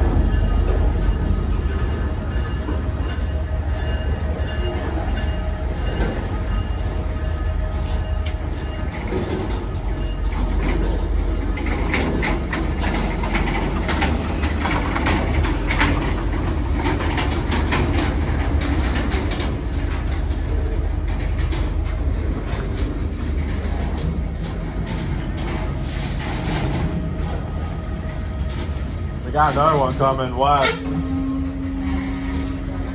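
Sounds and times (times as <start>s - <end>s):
train cars rumbling past: 0.0s - 32.9s
wheels clattering over rail joints: 7.9s - 27.5s.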